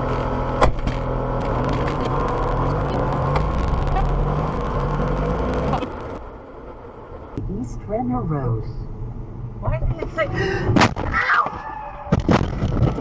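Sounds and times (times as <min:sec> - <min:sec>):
car engine and road noise: 0:00.0 - 0:11.3.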